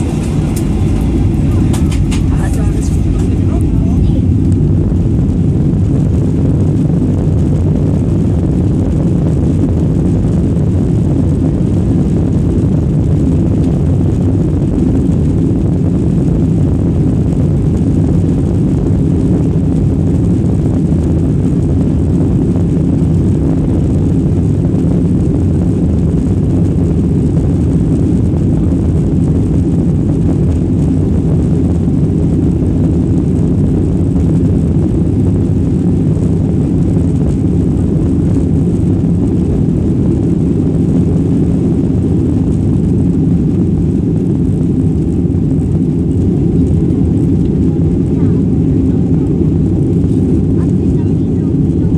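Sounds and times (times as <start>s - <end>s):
jet engines rumbling: 0.0s - 51.9s.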